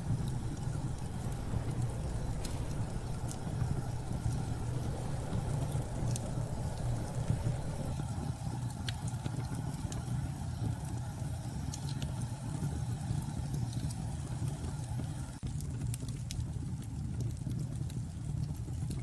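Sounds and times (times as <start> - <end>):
storm wind rumbling: 0.0 - 8.0
wood fire crackles: 0.0 - 8.0.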